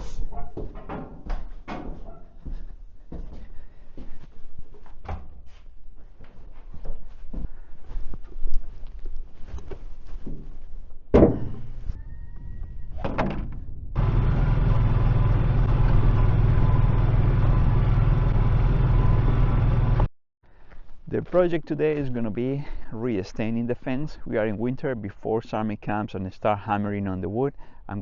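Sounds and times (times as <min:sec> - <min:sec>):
knocks and thuds: 0:10.3 - 0:11.8
engine running with low hum: 0:13.9 - 0:20.1.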